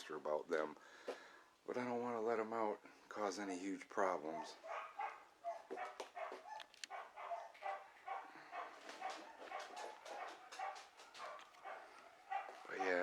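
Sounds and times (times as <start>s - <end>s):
dogs barking faintly: 4.0s - 13.0s.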